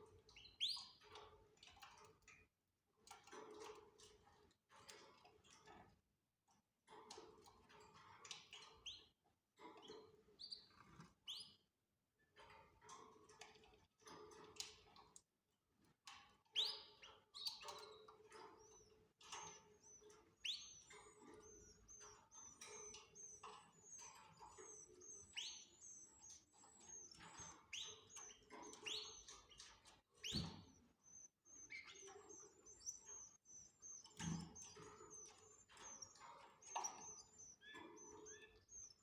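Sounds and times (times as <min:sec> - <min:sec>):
canaries chirping: 0:00.0 - 0:01.2, 0:07.1 - 0:11.6, 0:16.5 - 0:39.0.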